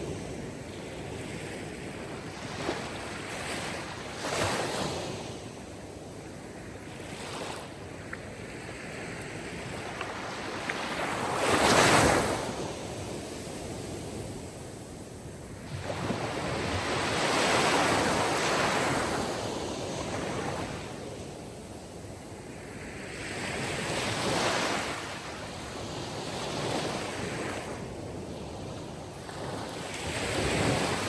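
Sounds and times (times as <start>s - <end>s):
sea waves breaking: 9.9s - 14.0s.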